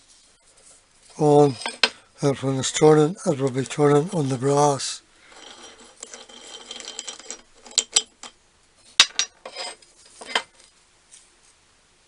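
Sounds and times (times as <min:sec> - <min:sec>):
faint rustle: 0:00.0 - 0:02.1, 0:08.8 - 0:11.7
small metal parts clinking: 0:01.1 - 0:02.0, 0:05.3 - 0:10.7.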